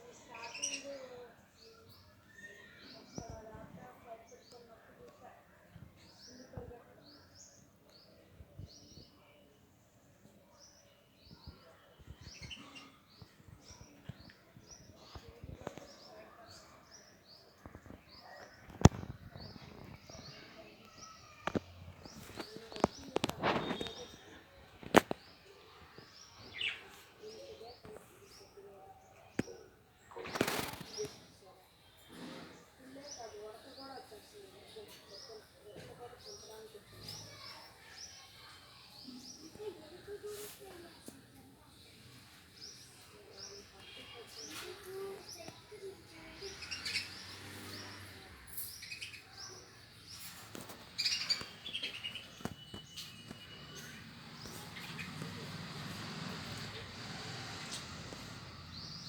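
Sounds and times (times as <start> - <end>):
lovebirds chirping: 0.0 - 9.4, 10.2 - 59.0.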